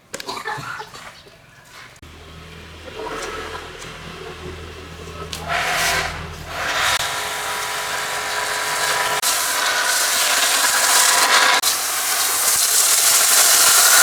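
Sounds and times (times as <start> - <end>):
pressure washer motor hum: 2.0 - 14.0
pressure washer spray hissing: 5.4 - 14.0.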